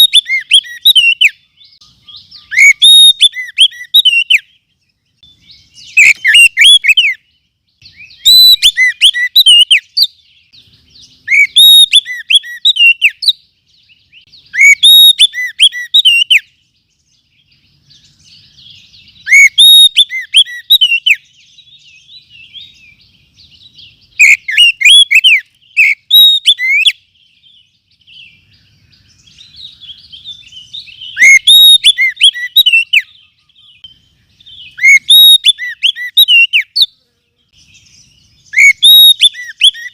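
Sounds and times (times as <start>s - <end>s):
bird chattering: 0.0s - 4.4s, 5.8s - 7.2s, 14.2s - 16.4s, 29.2s - 33.9s
bird whistled song: 0.0s - 39.9s.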